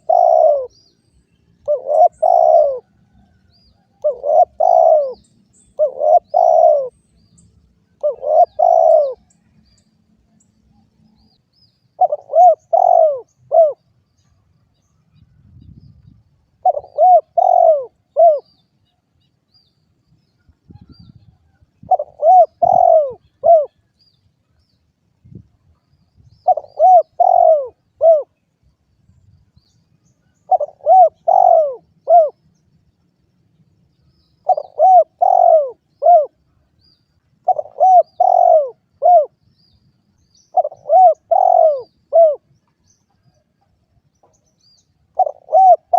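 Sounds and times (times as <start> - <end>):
dove cooing: 0.0 - 0.8, 1.6 - 3.2, 3.9 - 7.0, 7.9 - 9.3, 12.0 - 13.8, 16.6 - 18.5, 21.8 - 23.8, 26.4 - 28.4, 30.2 - 32.4, 34.4 - 36.4, 37.4 - 39.4, 40.4 - 42.5, 45.1 - 45.9.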